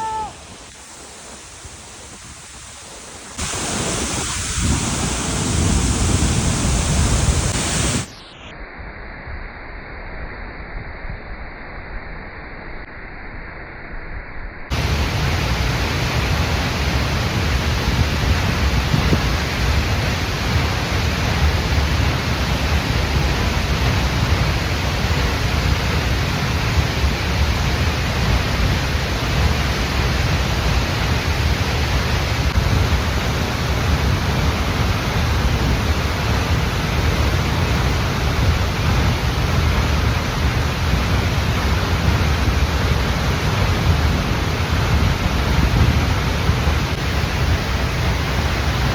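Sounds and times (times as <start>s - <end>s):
waterfall rushing: 0.0s - 8.1s, 46.9s - 48.9s.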